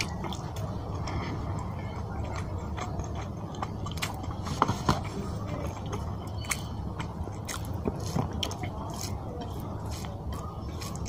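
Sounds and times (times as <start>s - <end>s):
man chewing food: 0.0s - 11.0s.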